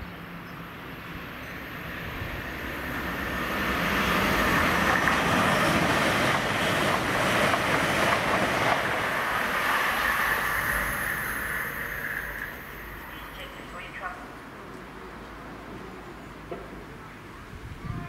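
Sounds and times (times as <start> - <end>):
train passing at speed: 0.0 - 18.0.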